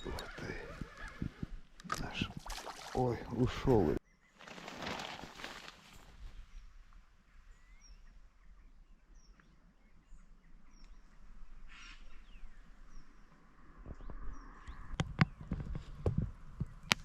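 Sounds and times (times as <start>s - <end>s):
birds chirping: 0.0s - 17.0s
brief rustle: 4.4s - 6.2s.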